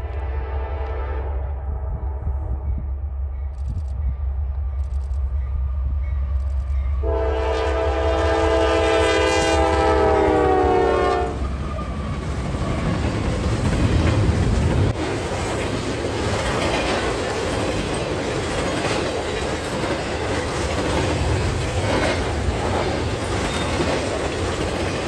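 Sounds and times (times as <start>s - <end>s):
locomotive air horn blast: 0.0s - 2.6s, 7.0s - 11.5s
diesel locomotives rumbling: 0.0s - 25.0s
train wheels clattering on rails: 11.4s - 25.0s.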